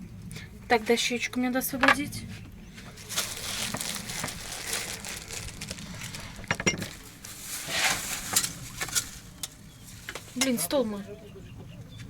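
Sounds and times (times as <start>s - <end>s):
dishes and utensils clinking: 6.5s - 7.0s.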